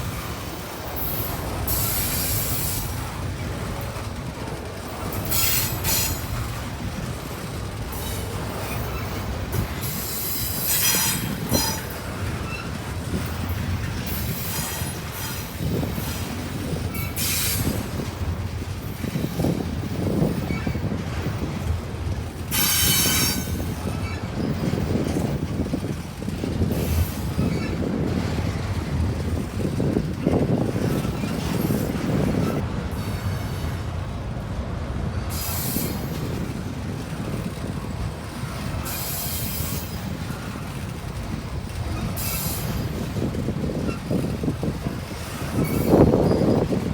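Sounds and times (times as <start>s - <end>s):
train wheels rumbling on rail: 0.0s - 46.9s
high wheel squeals: 8.0s - 13.3s, 19.1s - 21.0s, 22.5s - 25.4s, 26.8s - 28.0s, 41.9s - 46.9s.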